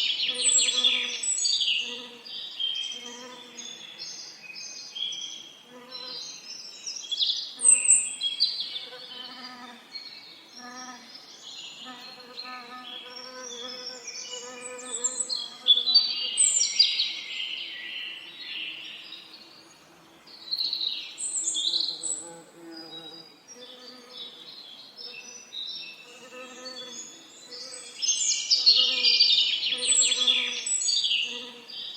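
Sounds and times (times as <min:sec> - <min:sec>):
songbirds chirping and singing: 0:00.0 - 0:31.9
low buzzing of bees: 0:21.6 - 0:25.4, 0:31.2 - 0:31.9.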